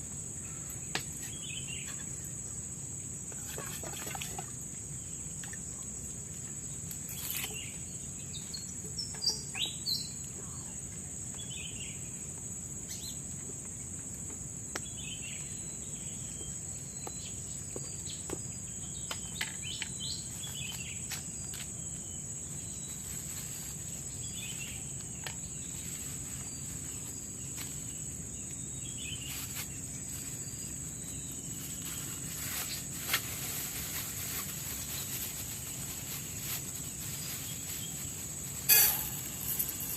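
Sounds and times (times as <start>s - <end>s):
high-pitched insect drone: 38.6s - 39.9s
bird chirps: 38.7s - 39.9s.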